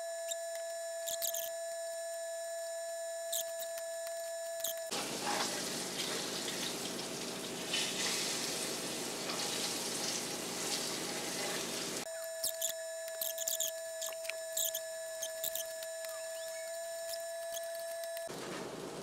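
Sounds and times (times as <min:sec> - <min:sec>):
fish frying in oil: 0:04.9 - 0:12.0.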